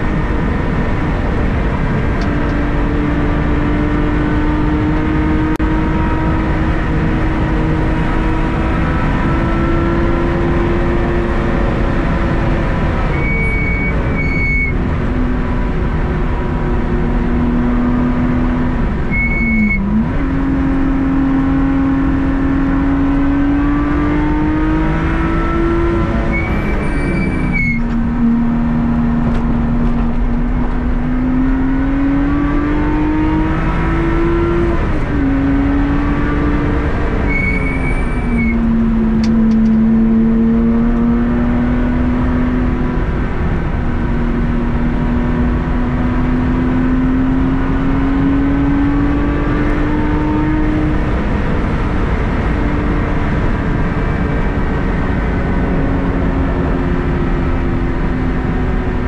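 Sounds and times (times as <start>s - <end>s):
car engine revving through gears: 0.0s - 59.0s
road and wind noise: 0.0s - 59.0s
high whistle: 13.1s - 14.8s, 19.1s - 19.9s, 26.3s - 27.8s, 37.3s - 38.7s.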